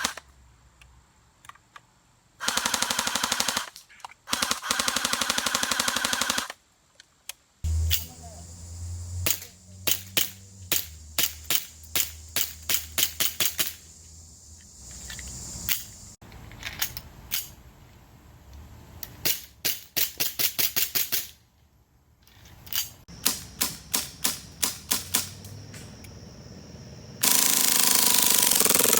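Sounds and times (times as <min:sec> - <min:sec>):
low hum: 0:07.7 - 0:13.0.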